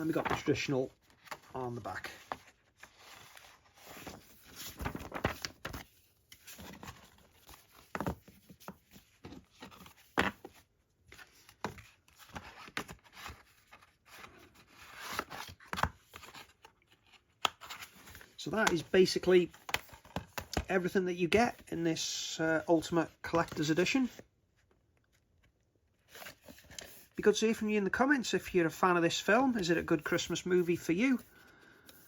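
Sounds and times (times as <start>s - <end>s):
paper rustling and crinkling: 0.0s - 20.7s.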